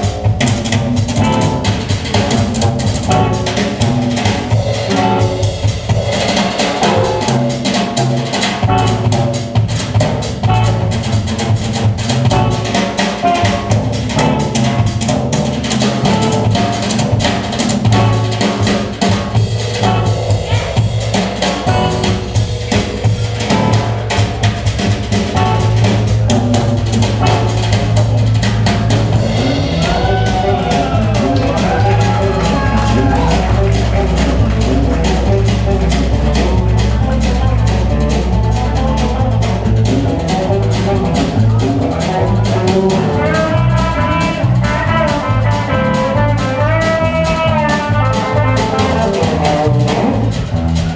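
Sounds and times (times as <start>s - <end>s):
drum kit beat: 0.0s - 50.9s
sustained low bass notes: 0.0s - 50.9s.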